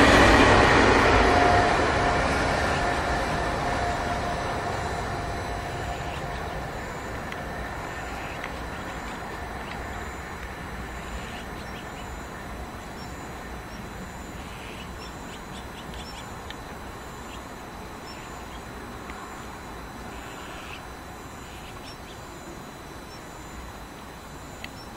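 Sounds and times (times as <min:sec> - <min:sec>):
distant train rumble: 0:00.0 - 0:24.9
bird chirps: 0:05.6 - 0:18.7.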